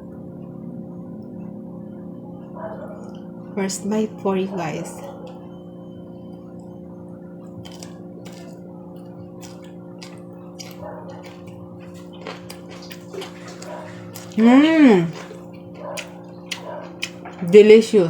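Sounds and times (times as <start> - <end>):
chewing crunchy food: 7.4 - 17.7
wet mouth clicks: 9.4 - 14.4.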